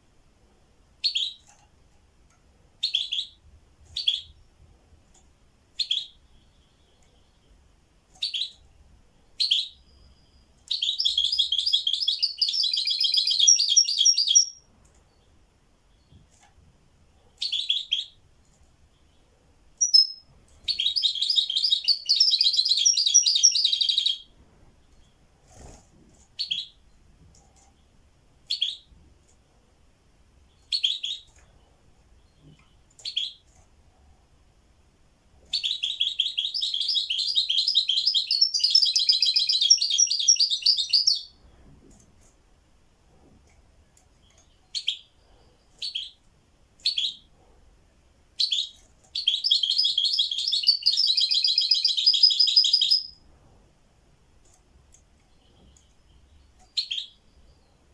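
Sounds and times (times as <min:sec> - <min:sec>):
songbird trilling song: 0:01.0 - 0:01.5, 0:02.8 - 0:04.4, 0:05.7 - 0:08.7, 0:09.3 - 0:16.2, 0:17.4 - 0:18.2, 0:18.9 - 0:25.2, 0:26.4 - 0:27.0, 0:27.8 - 0:28.9, 0:30.5 - 0:31.6, 0:32.2 - 0:33.5, 0:35.5 - 0:41.4, 0:44.2 - 0:47.3, 0:48.4 - 0:53.2, 0:55.3 - 0:57.9
bird short chirps: 0:19.8 - 0:24.2.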